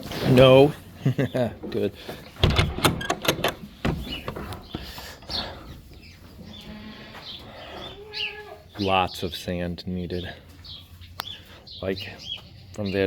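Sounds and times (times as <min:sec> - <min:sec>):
sharp knocks and rattles: 0:02.3 - 0:05.0.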